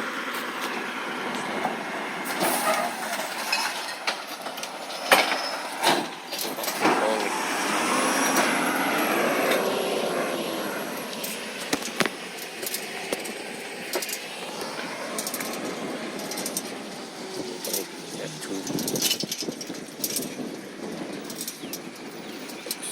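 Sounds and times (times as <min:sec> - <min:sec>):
recycling truck running: 0:00.0 - 0:22.9
high mechanical whine: 0:05.1 - 0:22.9.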